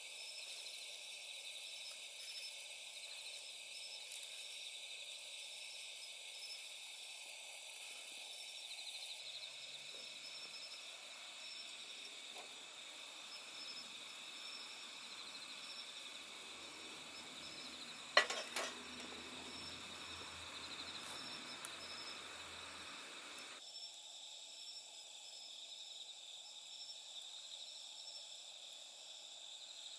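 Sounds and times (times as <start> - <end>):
night insects chirping: 0.0 - 29.9.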